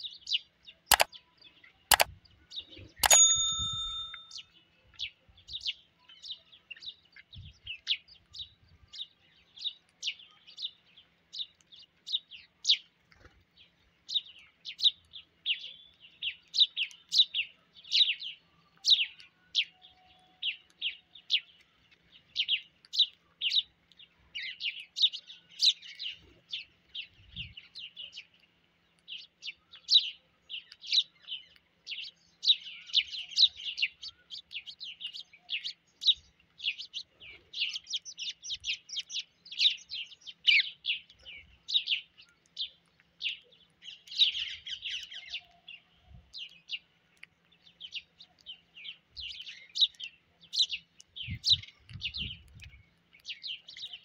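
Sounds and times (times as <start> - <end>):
birds chirping rapidly: 13.5 - 54.0.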